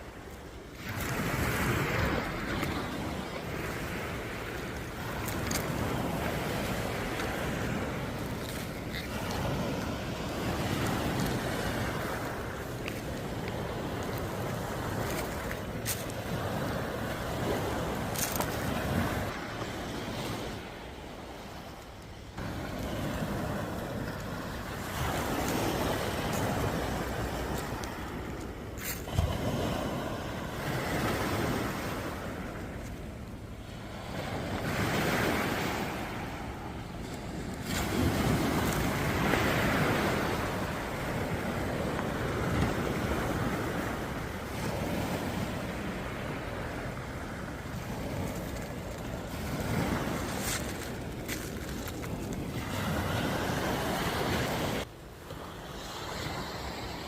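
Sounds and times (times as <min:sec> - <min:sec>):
wind on microphone: 0:00.0 - 0:21.8, 0:22.4 - 0:57.0
sea waves breaking: 0:00.0 - 0:57.0.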